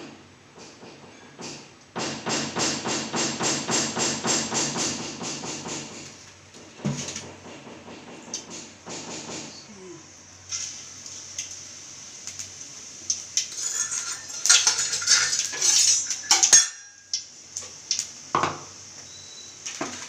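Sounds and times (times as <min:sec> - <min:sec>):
metal kitchenware clattering: 0:13.5 - 0:17.1.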